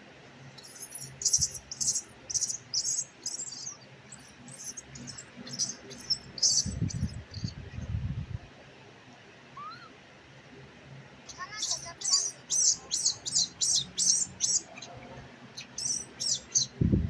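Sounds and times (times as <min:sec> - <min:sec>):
baby monkey squeaking: 0:00.6 - 0:07.6, 0:11.3 - 0:14.8, 0:15.6 - 0:16.7.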